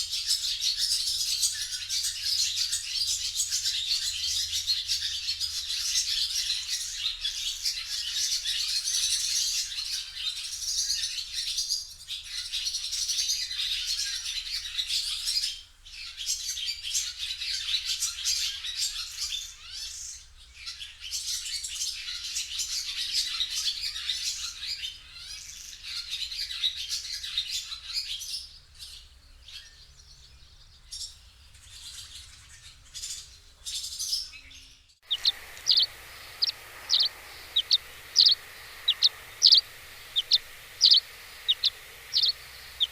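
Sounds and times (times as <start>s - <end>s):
small birds chirping and twittering: 0.0s - 42.9s.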